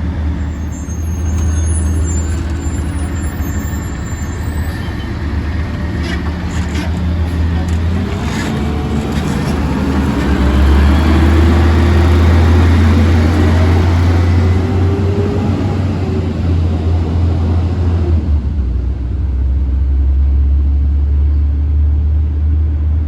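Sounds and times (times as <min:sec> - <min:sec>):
garbage truck engine revving: 0:01.2 - 0:18.8.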